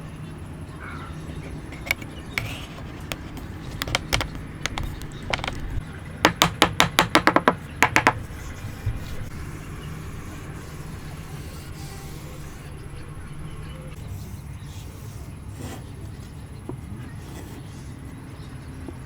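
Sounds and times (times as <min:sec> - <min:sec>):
wood tapping on wood: 0:01.3 - 0:08.3.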